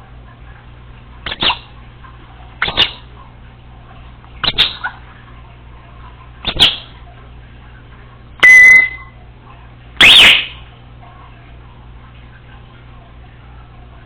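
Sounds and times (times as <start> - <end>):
parrot calling: 1.3 - 1.7, 2.6 - 3.1, 4.4 - 5.0, 6.5 - 6.9, 10.0 - 10.6.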